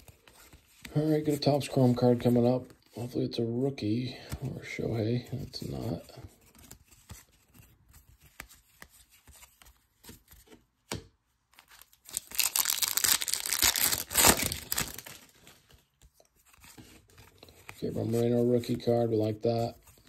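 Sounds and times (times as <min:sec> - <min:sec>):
foil wrapper crinkling and tearing: 0:11.7 - 0:15.6.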